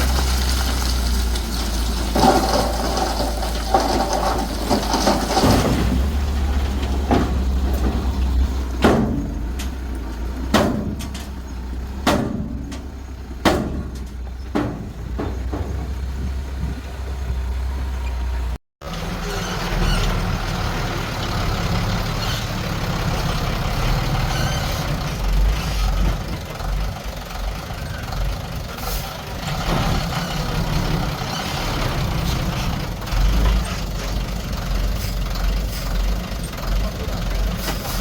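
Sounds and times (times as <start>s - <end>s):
diesel engine running: 0.0s - 38.0s
sharp metallic clanks: 8.7s - 16.0s.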